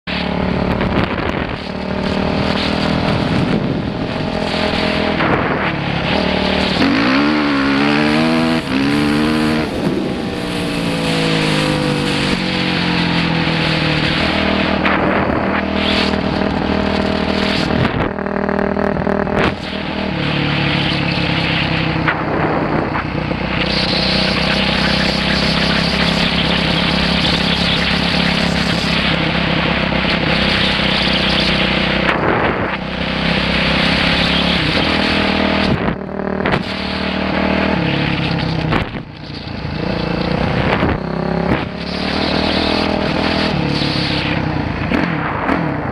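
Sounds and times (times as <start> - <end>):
dirt bike engine revving: 0.1 - 45.9.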